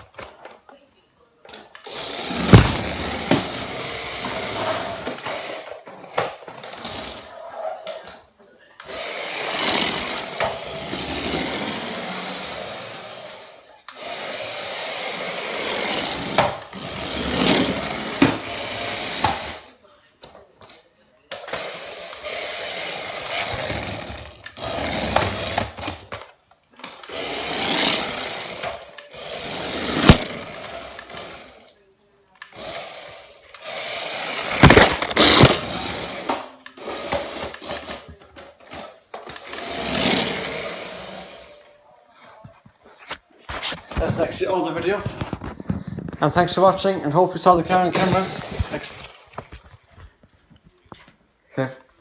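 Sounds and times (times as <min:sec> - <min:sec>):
toy car motor running: 0:01.7 - 0:08.2, 0:08.8 - 0:19.7, 0:21.5 - 0:26.1, 0:26.8 - 0:31.8, 0:32.4 - 0:41.5
wheels rolling over ground: 0:01.9 - 0:05.6, 0:34.2 - 0:41.5.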